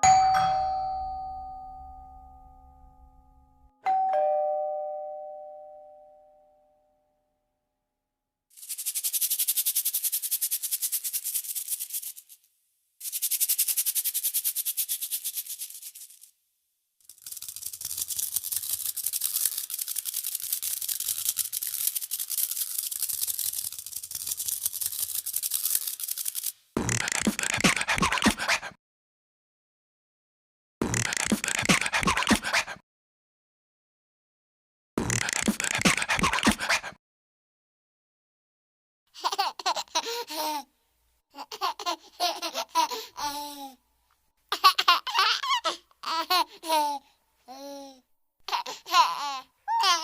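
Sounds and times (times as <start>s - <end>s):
doorbell ding-dong chime: 0.0s - 6.8s.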